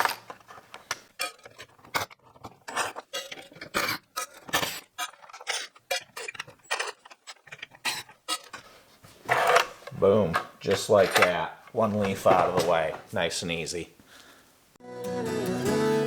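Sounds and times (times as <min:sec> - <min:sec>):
screws and tools clicking: 0:00.5 - 0:08.7.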